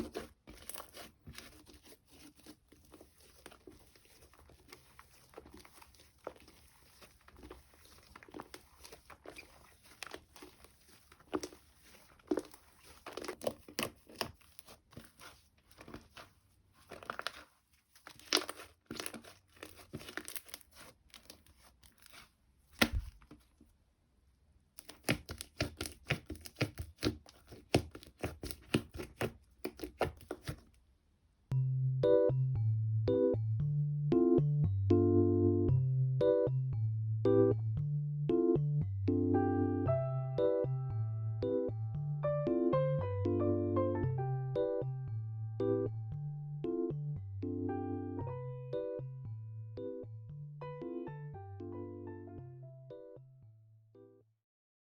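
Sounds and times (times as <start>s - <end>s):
slime squelching and crackling: 0.0s - 23.7s, 24.7s - 30.8s
light piano music: 31.5s - 53.6s.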